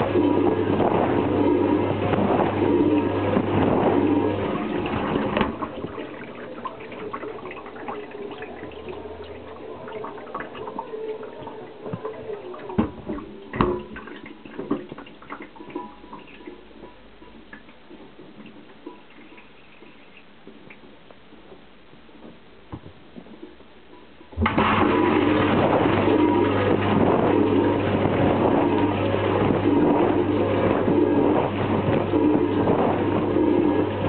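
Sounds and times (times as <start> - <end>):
water drips and taps: 0.0 - 21.6.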